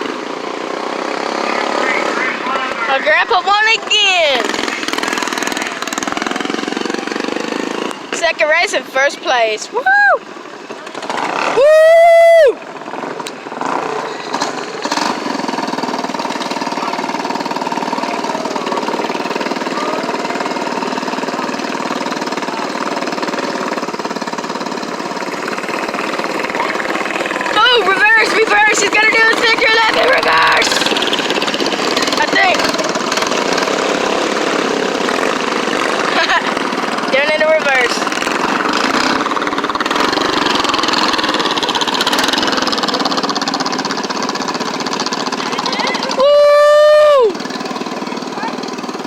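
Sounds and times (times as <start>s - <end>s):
tractor engine running: 0.0s - 49.0s.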